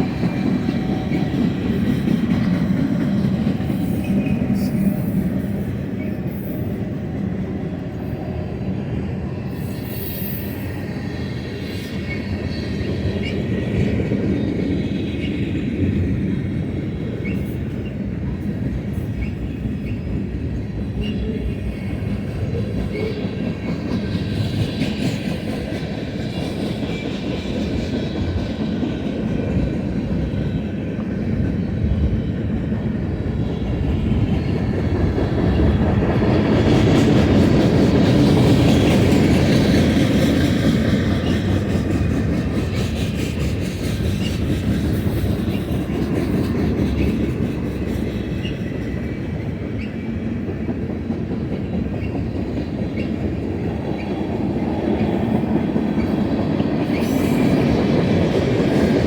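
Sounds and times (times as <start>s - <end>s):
freight train wheels clacking: 0.0s - 59.0s.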